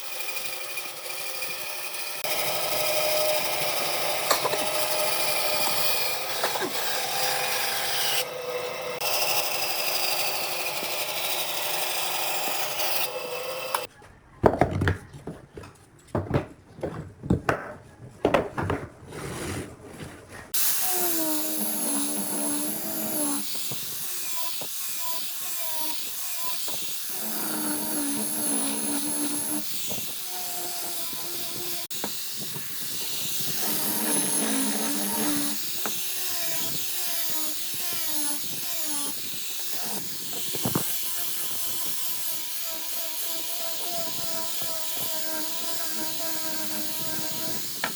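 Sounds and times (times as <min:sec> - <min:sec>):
power tool motor running: 0:00.0 - 0:13.9, 0:20.6 - 0:47.9.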